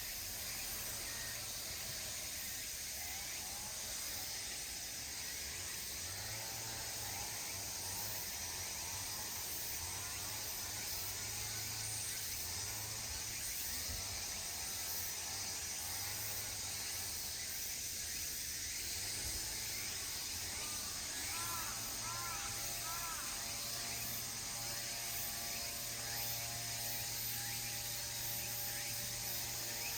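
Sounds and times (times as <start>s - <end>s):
steady high hiss: 0.0s - 6.0s.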